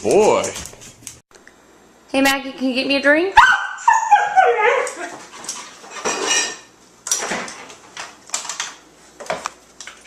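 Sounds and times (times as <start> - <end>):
bottles clinking in refrigerator: 6.0 - 7.6.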